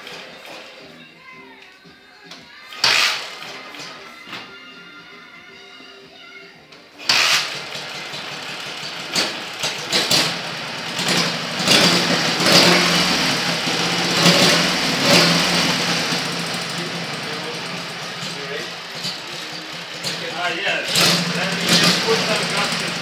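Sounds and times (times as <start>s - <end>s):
motorcycle engine revving: 2.8s - 4.0s, 7.0s - 23.0s.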